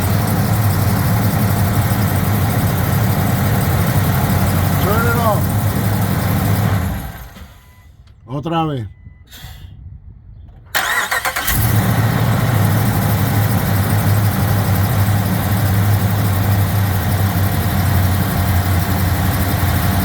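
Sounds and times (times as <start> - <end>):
truck engine idling: 0.0 - 8.8, 10.8 - 20.0
starter motor cranking: 10.8 - 12.2.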